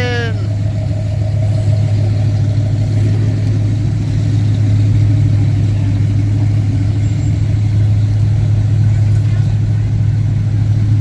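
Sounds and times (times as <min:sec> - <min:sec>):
car engine deep rumble: 0:00.0 - 0:11.0.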